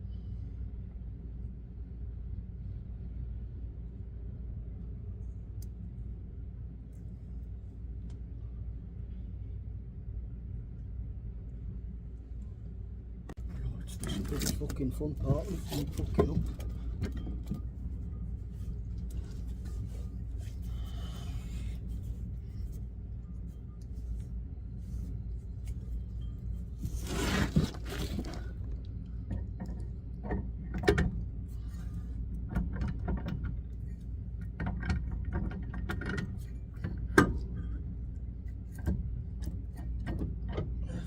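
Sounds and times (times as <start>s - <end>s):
steady low hum: 0.0s - 41.0s
metal clanks and knocks: 13.8s - 20.5s.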